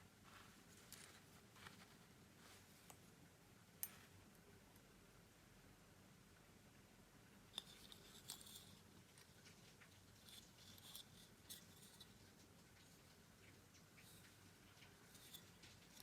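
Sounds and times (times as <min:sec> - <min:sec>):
scraping of small parts: 0:07.6 - 0:13.1, 0:14.0 - 0:16.0.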